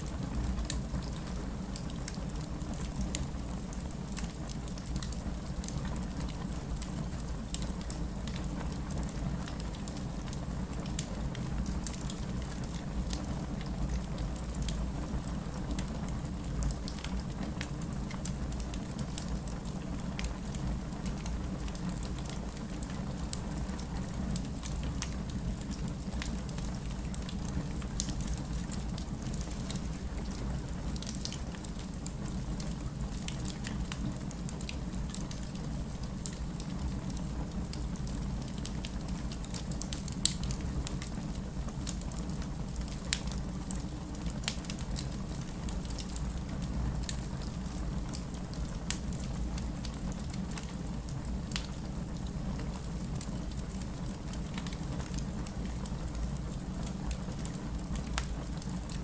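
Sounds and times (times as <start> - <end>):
fire crackling: 0.0 - 59.0
fire flames rumbling: 0.0 - 59.0.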